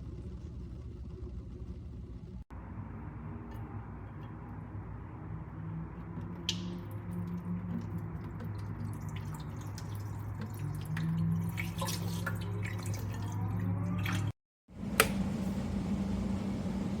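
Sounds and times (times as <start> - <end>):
ticks and drips: 6.2 - 14.3
electric kettle humming: 14.7 - 17.0.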